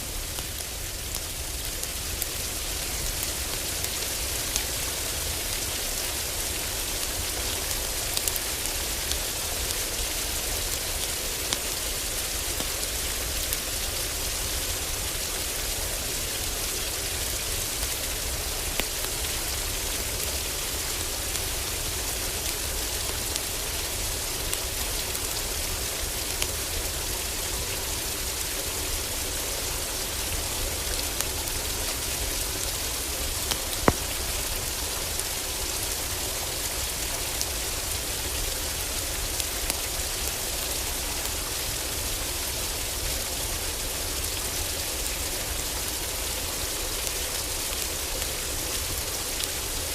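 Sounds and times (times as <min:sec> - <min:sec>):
heavy rain on a roof: 0:00.0 - 0:49.9
wood fire crackling: 0:07.6 - 0:10.0, 0:29.4 - 0:40.5.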